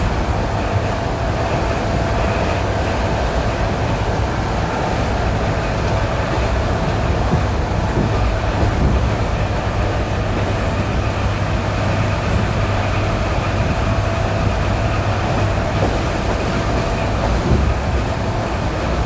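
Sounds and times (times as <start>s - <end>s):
train rolling rumble: 0.0s - 19.0s
wheel knocks at rail joints: 5.9s - 10.5s.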